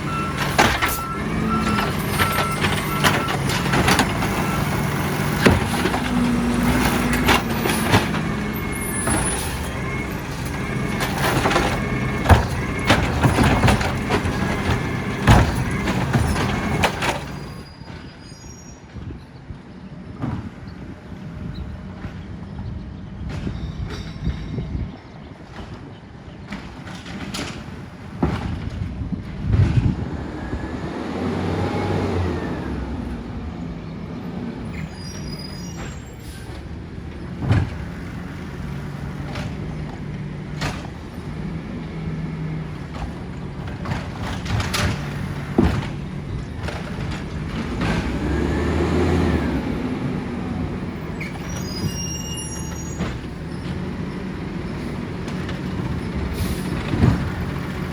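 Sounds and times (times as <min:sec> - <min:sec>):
garbage truck diesel engine revving: 0:00.0 - 0:17.6, 0:30.0 - 0:57.9
bangs of carts and metal: 0:00.0 - 0:18.4, 0:22.0 - 0:30.2, 0:34.2 - 0:57.9.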